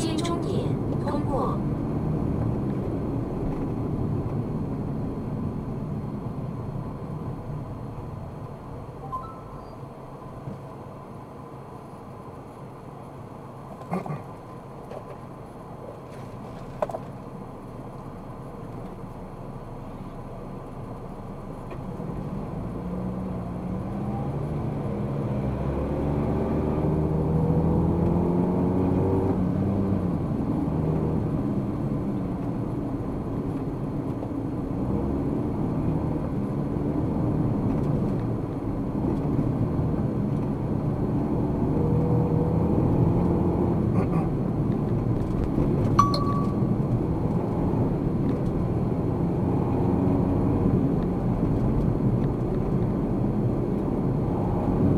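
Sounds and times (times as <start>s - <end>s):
road noise: 0.0s - 54.9s
car engine accelerating: 21.6s - 32.8s, 34.6s - 54.9s.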